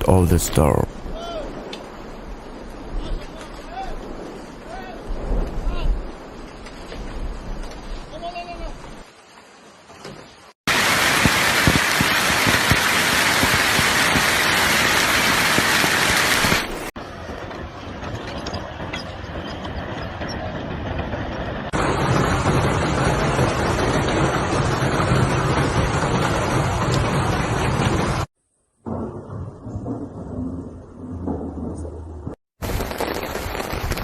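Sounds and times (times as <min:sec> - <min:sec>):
hail pelting: 0:10.7 - 0:16.9, 0:21.7 - 0:28.3, 0:32.6 - 0:34.0.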